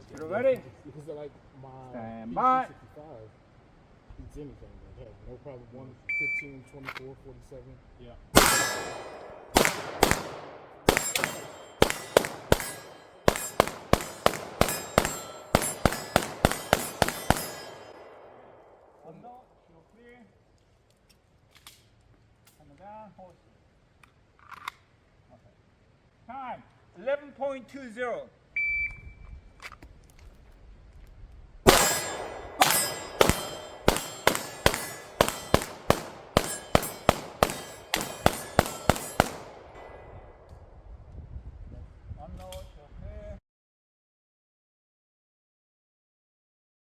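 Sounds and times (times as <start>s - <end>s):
bullets clanging on steel targets: 8.4s - 18.5s, 31.7s - 40.2s
rapid pistol fire: 8.4s - 18.7s, 31.7s - 40.5s.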